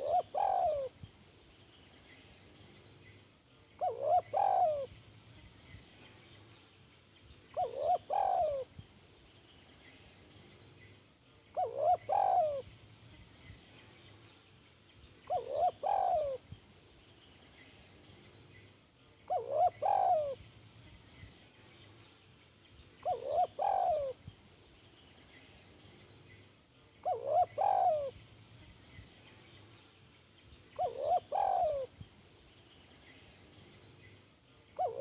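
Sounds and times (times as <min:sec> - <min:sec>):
dove cooing: 0:00.0 - 0:01.0, 0:03.8 - 0:05.0, 0:07.5 - 0:08.7, 0:11.5 - 0:12.7, 0:15.2 - 0:16.5, 0:19.3 - 0:20.4, 0:23.0 - 0:24.2, 0:27.0 - 0:28.2, 0:30.8 - 0:31.9, 0:34.8 - 0:35.0.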